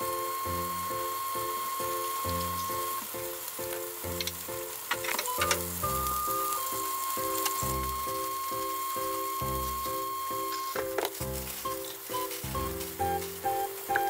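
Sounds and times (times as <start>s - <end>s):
peppers sizzling in oil: 0.0s - 14.0s
background music with beat: 5.3s - 14.0s.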